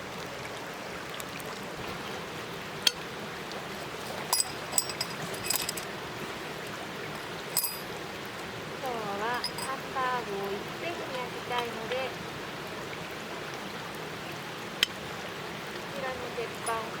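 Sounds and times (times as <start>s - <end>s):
steady background hiss: 0.0s - 17.0s
metallic clinks and rattles: 4.1s - 5.9s, 7.5s - 7.9s, 9.4s - 9.8s.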